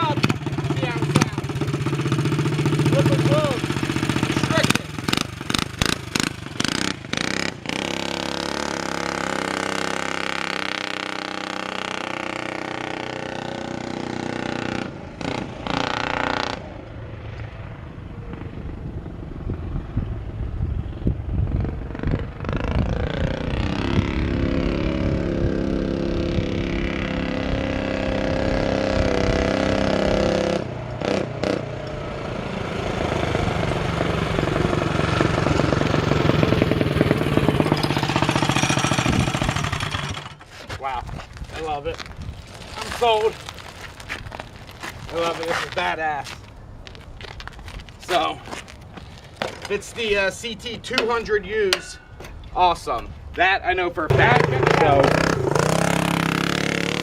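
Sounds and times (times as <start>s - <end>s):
minibike engine revving: 0.0s - 16.8s, 21.2s - 40.6s, 54.1s - 57.0s.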